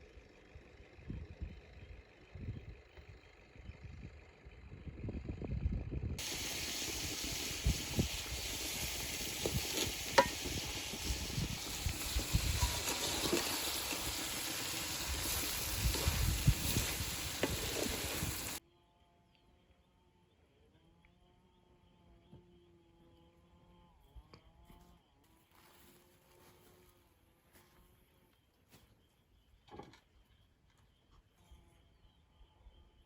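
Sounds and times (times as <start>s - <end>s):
pork sizzling in a pan: 6.2s - 18.6s
utensil knocking and scraping: 9.4s - 11.1s.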